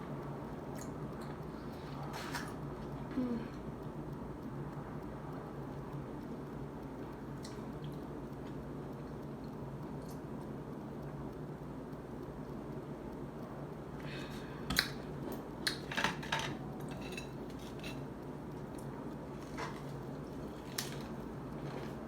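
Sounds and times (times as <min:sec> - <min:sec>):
utensils clicking against plate: 0:15.7 - 0:18.1.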